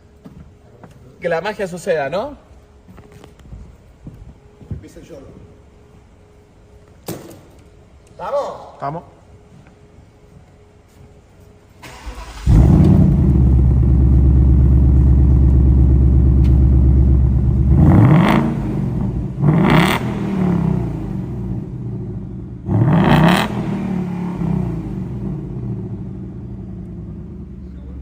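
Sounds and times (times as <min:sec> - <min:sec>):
engine throttle blips: 0:11.8 - 0:28.0.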